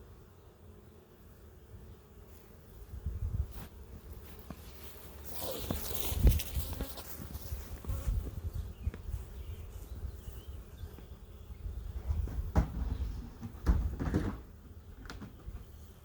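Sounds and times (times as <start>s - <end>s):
honey bees buzzing: 0.0s - 16.0s
knocks and scrapes of hive handling: 3.4s - 10.0s, 11.9s - 16.0s.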